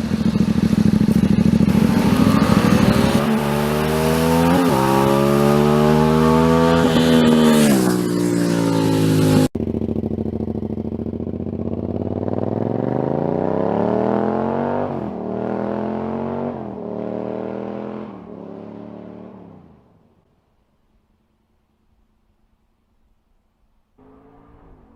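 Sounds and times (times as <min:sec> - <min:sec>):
motorcycle engine accelerating: 0:00.0 - 0:19.9.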